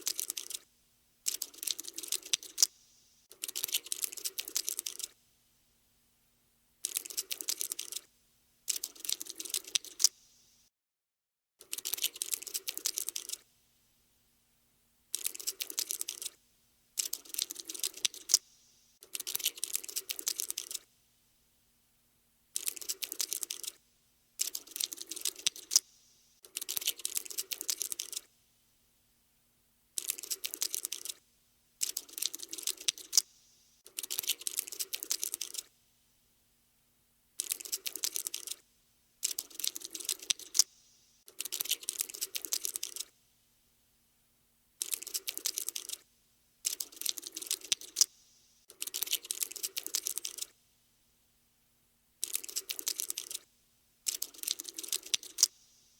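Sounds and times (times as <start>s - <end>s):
cockroach scuttling: 0.0s - 0.6s, 1.3s - 5.2s, 6.8s - 8.1s, 8.7s - 10.2s, 11.6s - 13.4s, 15.1s - 16.4s, 17.0s - 20.9s, 22.6s - 23.8s, 24.4s - 28.3s, 30.0s - 31.2s, 31.8s - 35.7s, 37.4s - 38.6s, 39.2s - 43.1s, 44.8s - 46.0s, 46.6s - 50.6s, 52.2s - 55.8s.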